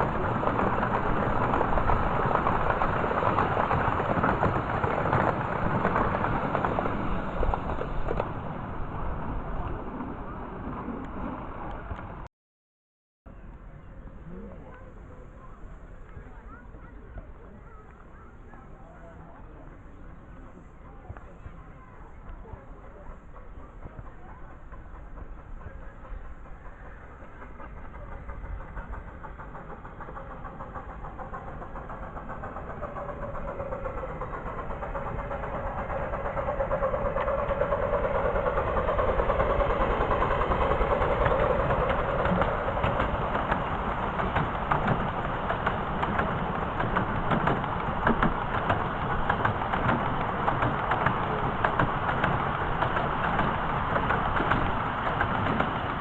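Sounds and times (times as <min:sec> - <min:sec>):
miniature train running past: 0:00.0 - 0:12.3, 0:13.3 - 0:56.0
rapid clicking and rattling: 0:23.4 - 0:56.0.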